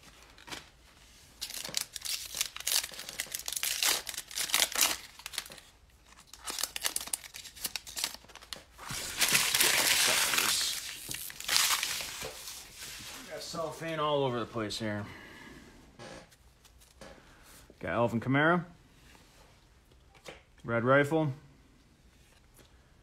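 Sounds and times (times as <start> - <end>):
cellophane wrapper tearing and crinkling: 1.4 - 12.6.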